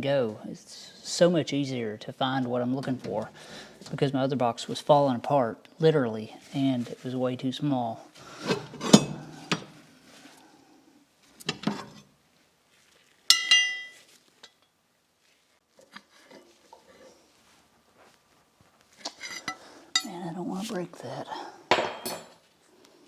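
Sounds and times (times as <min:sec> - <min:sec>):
ringing metallic clink: 0:13.3 - 0:14.0
metal tools clinking: 0:13.3 - 0:14.7, 0:19.2 - 0:20.3.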